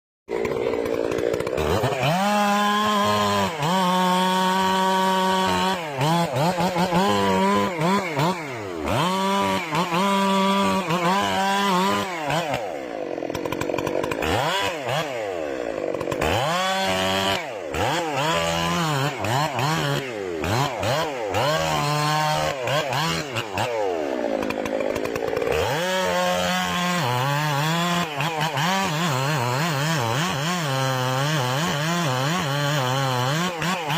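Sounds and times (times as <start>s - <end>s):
chainsaw cutting wood: 0.3s - 33.9s.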